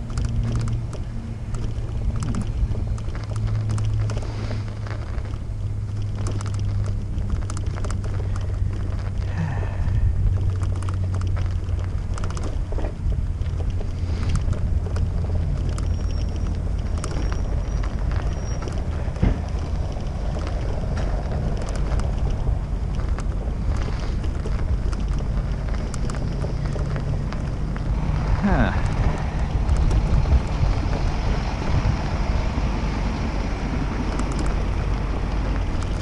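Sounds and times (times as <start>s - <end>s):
light clicks and rattles: 0.0s - 36.0s
wind buffeting microphone: 0.0s - 36.0s.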